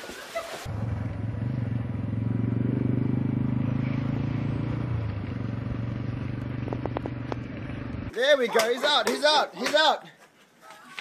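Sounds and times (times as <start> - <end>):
engine droning: 0.7 - 8.1.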